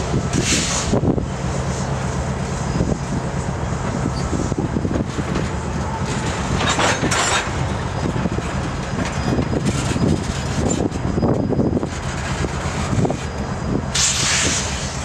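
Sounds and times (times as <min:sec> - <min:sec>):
train wheels rumbling on rail: 0:00.0 - 0:15.0
brief hiss: 0:14.0 - 0:15.0.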